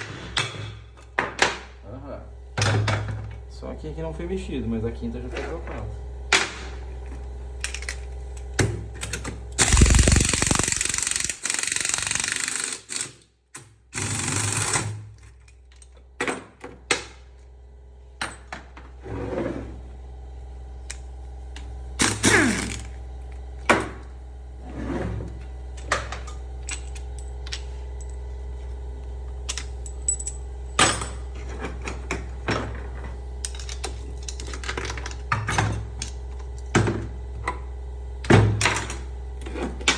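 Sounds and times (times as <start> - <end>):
workshop hum: 0.0 - 39.9
pneumatic tool running: 9.6 - 13.2, 13.9 - 15.1, 22.0 - 23.0.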